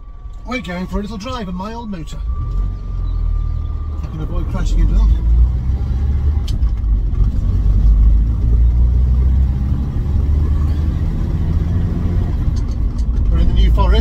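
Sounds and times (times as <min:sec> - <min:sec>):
car engine running: 0:00.0 - 0:14.0
road and tyre rumble: 0:00.0 - 0:14.0.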